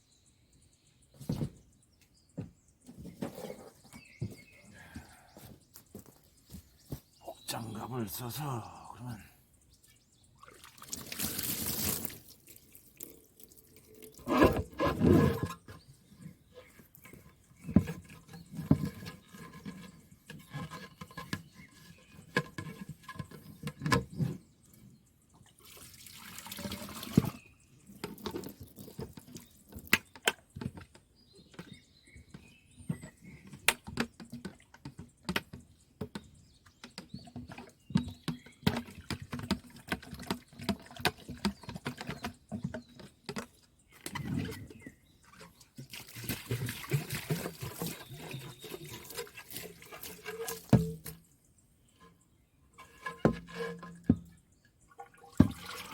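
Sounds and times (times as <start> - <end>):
water splashing and dripping: 10.4 - 14.4, 25.6 - 27.4, 45.2 - 51.2, 54.9 - 55.9
rush of water: 10.6 - 13.2.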